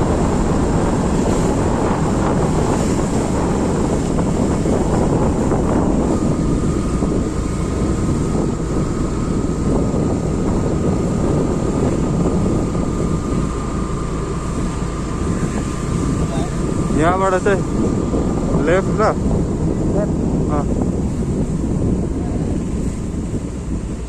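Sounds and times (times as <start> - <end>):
high whine: 0.0 - 24.0
motorbike engine: 0.0 - 24.0
road noise: 0.0 - 24.0
wind rush over microphone: 0.0 - 24.0.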